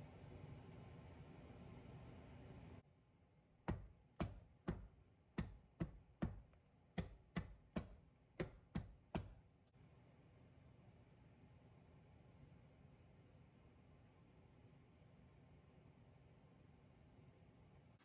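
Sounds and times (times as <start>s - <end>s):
taps on a hard surface: 3.7s - 9.4s.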